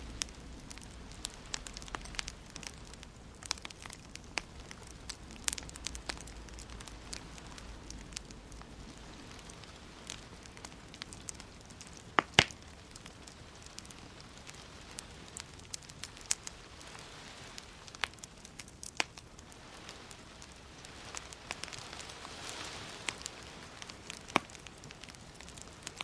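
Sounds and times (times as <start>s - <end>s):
loud pops from fire: 0.0s - 17.0s, 17.6s - 19.4s, 20.1s - 26.0s
wood fire crackling: 0.0s - 26.0s.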